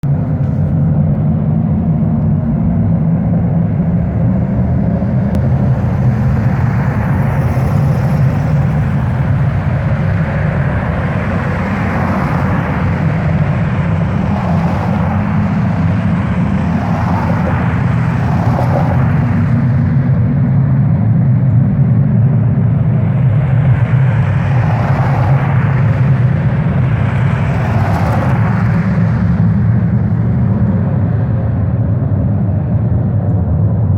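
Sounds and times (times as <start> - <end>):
loud steady low rumble: 0.0 - 33.9.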